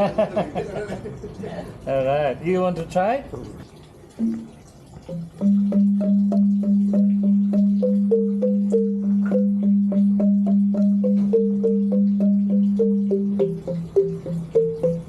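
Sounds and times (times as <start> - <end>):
bamboo xylophone melody: 4.2 - 15.0.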